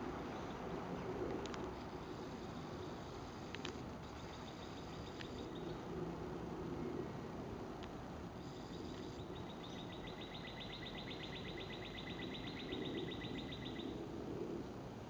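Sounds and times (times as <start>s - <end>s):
outdoor background hiss: 0.0s - 15.0s
bird trilling: 9.2s - 13.9s.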